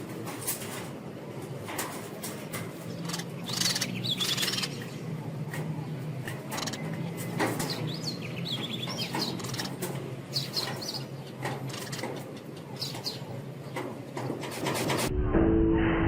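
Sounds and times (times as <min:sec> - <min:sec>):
small birds chirping: 0:02.5 - 0:14.5.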